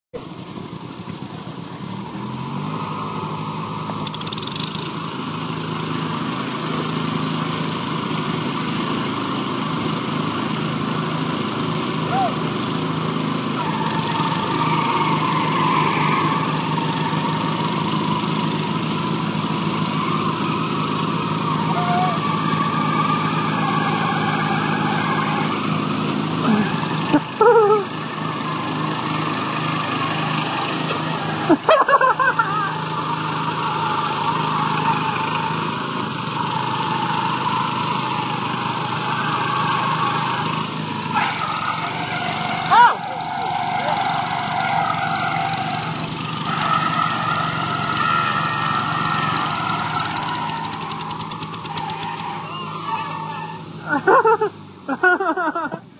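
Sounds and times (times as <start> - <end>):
lawn tractor engines running: 0.2 - 55.9
loud wavering shouts: 12.0 - 12.5, 13.5 - 54.1.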